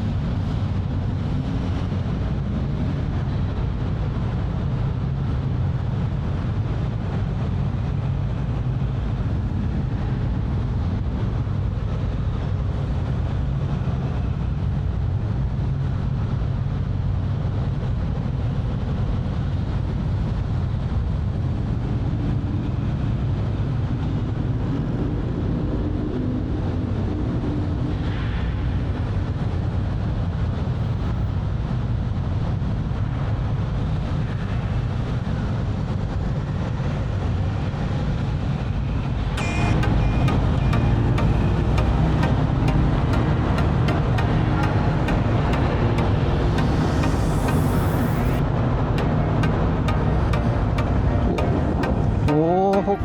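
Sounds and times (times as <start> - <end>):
ferry engines rumbling: 34.0 - 53.0.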